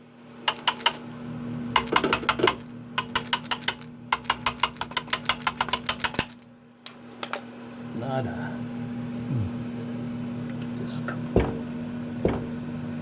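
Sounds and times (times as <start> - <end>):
fan humming: 0.0 - 13.0
sharp tapping clicks: 0.5 - 1.0, 1.7 - 6.4.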